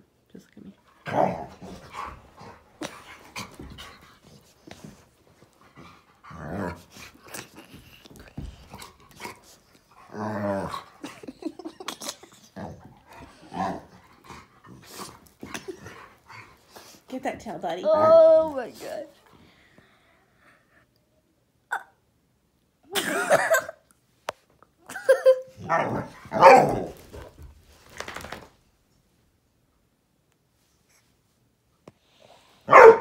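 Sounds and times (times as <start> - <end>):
dog growling: 1.0 - 3.7, 6.2 - 11.7, 12.3 - 16.5.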